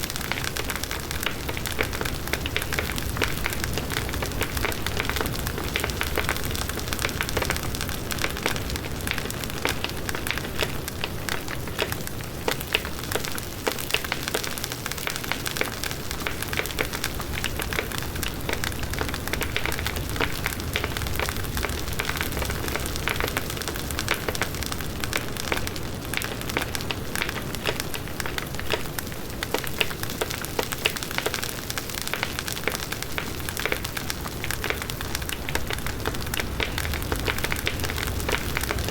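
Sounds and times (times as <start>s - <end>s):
wood crackling and popping: 0.0s - 38.9s.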